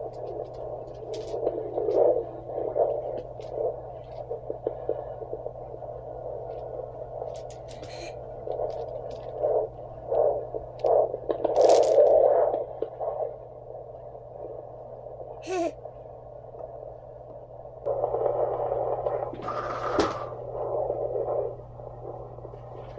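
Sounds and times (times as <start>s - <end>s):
probe scraping: 0.0s - 13.3s
doppler static hiss and hum: 0.0s - 22.9s.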